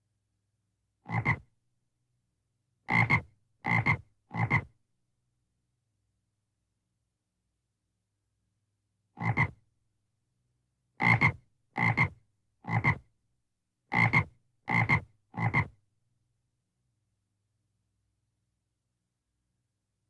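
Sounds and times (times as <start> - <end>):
frog croaking: 1.1 - 1.4, 2.9 - 4.7, 9.2 - 9.6, 11.0 - 13.0, 14.0 - 15.7.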